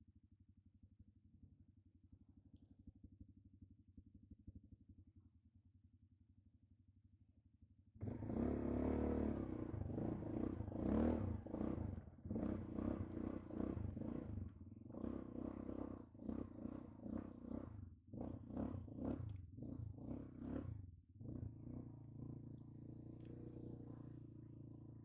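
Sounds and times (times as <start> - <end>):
quad bike engine revving: 8.0 - 25.0.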